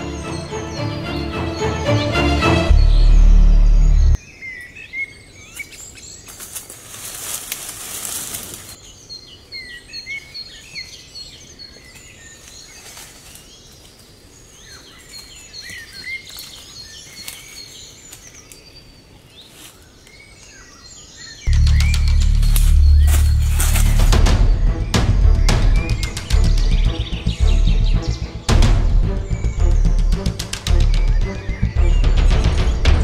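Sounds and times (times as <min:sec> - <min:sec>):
music: 0:00.0 - 0:04.2, 0:21.5 - 0:33.0
forest birds chirping: 0:00.0 - 0:33.0
rushing rustling noise: 0:06.3 - 0:08.8, 0:21.5 - 0:24.4.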